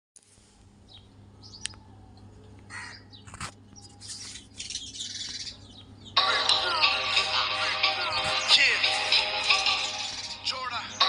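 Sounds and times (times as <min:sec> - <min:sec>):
birds calling: 0:00.8 - 0:11.0.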